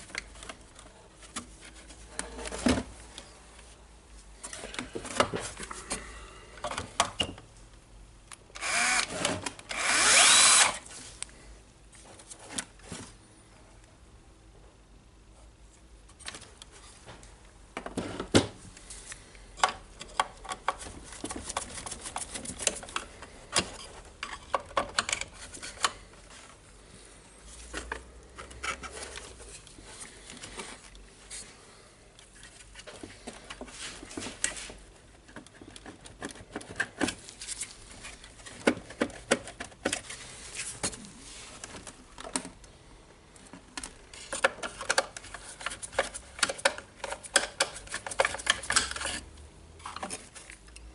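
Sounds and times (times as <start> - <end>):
plastic parts clicking and clattering: 19.6 - 26.3, 32.2 - 41.0, 43.4 - 50.9
small tools being handled: 43.7 - 50.8.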